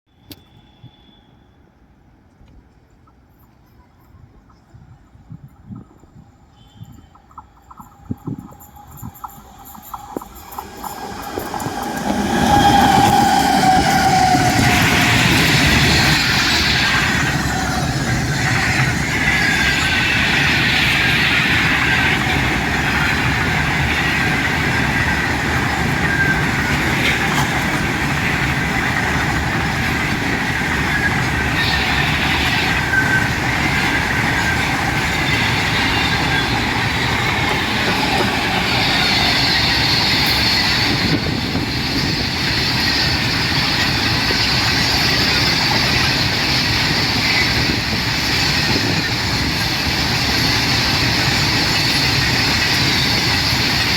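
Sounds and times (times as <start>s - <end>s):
train wheels on rails: 2.2s - 53.9s
high squealing tones: 9.0s - 22.1s.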